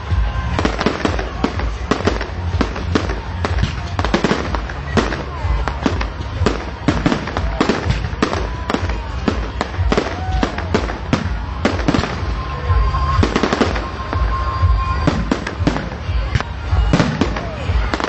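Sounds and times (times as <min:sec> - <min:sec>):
fireworks bangs and crackles: 0:00.0 - 0:18.0
fireworks whistling: 0:00.0 - 0:18.0.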